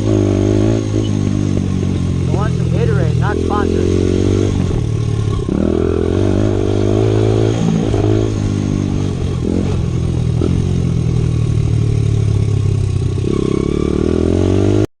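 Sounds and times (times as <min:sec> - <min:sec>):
dirt bike engine revving: 0:00.0 - 0:14.9.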